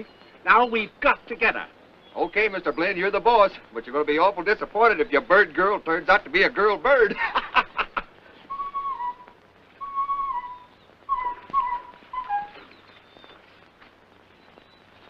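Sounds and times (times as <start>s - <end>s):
soprano imitating bird calls: 8.5s - 13.4s.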